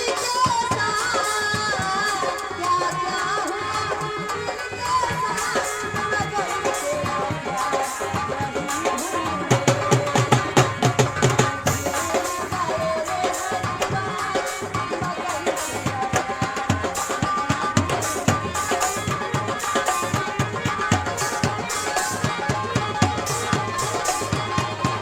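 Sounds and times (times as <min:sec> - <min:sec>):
hand drums fast rhythm: 0:00.0 - 0:25.0.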